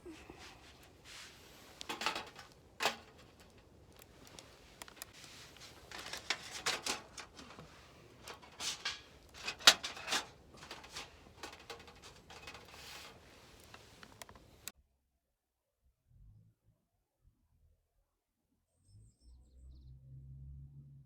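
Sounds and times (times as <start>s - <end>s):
rustling and scraping: 0.0s - 14.7s.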